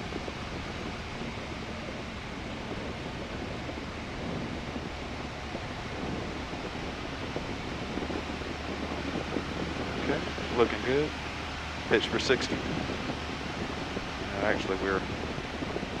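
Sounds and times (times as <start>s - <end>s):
aircraft engine idling: 0.0s - 16.0s
wind rushing: 0.0s - 16.0s.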